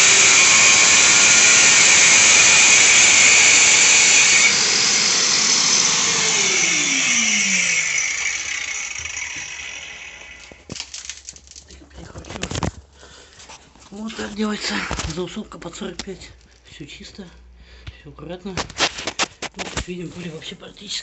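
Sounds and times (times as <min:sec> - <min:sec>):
dust extraction vacuum running: 0:00.0 - 0:10.7
power tool cutting tile: 0:00.0 - 0:10.7.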